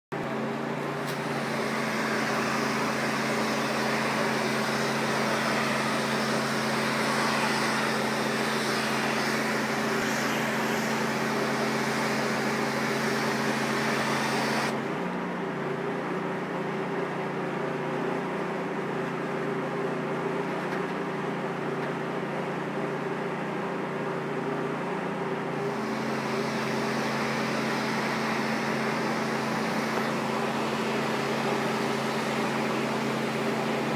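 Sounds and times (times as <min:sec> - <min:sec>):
pressure washer motor: 0:00.2 - 0:33.9.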